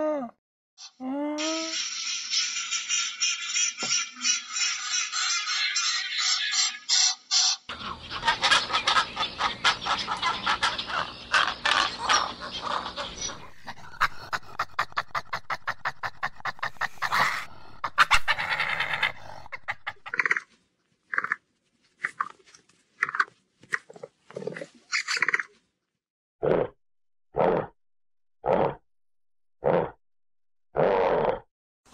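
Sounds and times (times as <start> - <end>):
capybara calls: 7.7 - 20.4
rapid animal calling: 7.7 - 20.5.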